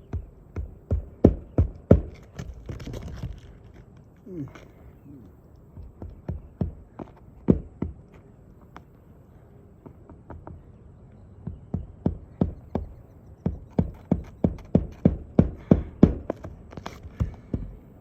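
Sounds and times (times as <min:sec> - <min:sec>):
sharp knocks: 0:00.0 - 0:03.4, 0:05.7 - 0:08.1, 0:11.4 - 0:17.8.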